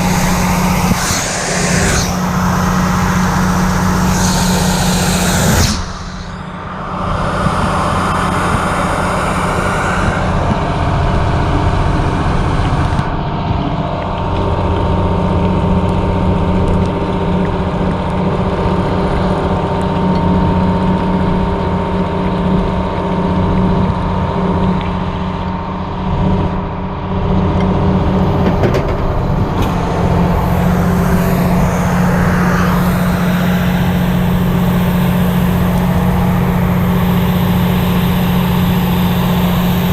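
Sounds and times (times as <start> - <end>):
hiss: 0.0 - 10.4
fire truck diesel engine running: 0.0 - 39.9.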